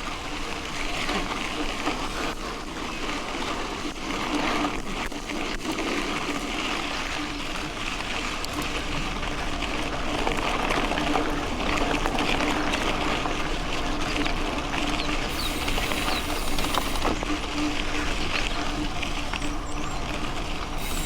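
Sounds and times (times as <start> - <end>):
bike tyres crackling over gravel: 8.0 - 21.0
faint hum: 15.0 - 21.0
steady rushing noise: 15.3 - 17.3.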